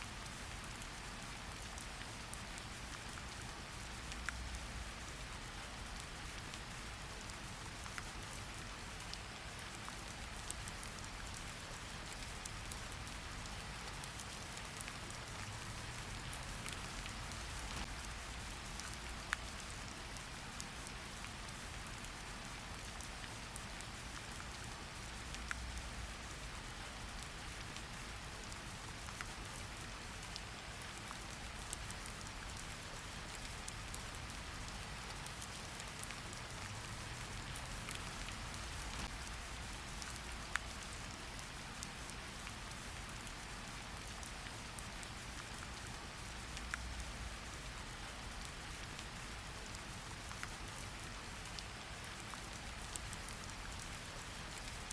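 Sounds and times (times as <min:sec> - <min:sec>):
steady rain hissing: 0:00.0 - 0:54.9
raindrops ticking: 0:09.0 - 0:41.4.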